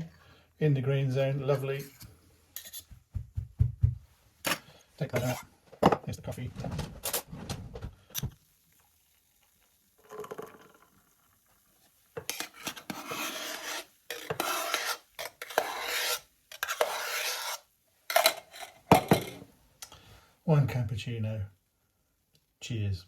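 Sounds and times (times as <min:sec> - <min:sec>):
milk jug scraping: 0:05.0 - 0:05.5, 0:12.2 - 0:17.6.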